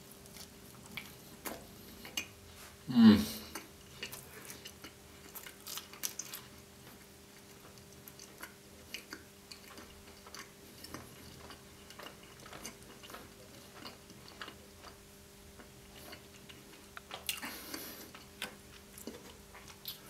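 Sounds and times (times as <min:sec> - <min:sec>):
close chewing mouth clicks: 0:03.5 - 0:06.5, 0:07.4 - 0:15.0.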